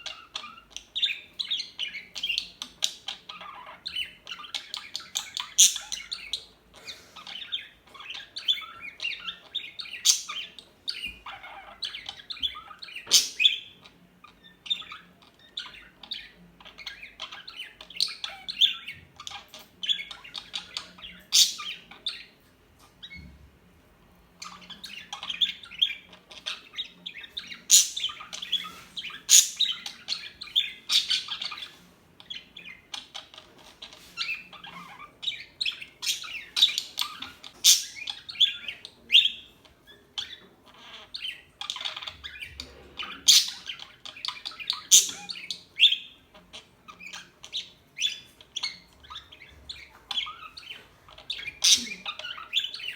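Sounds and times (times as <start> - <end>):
budgerigars chirping: 0.0 - 23.3, 24.3 - 52.9.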